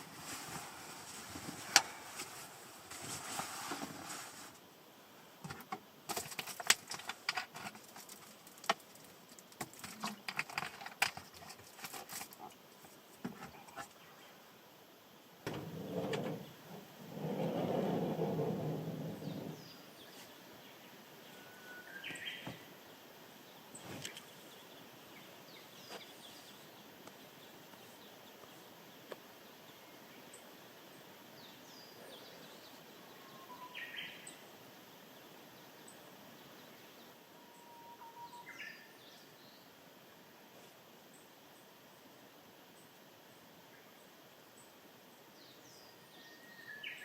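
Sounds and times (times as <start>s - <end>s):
small birds chirping: 15.4s - 39.8s.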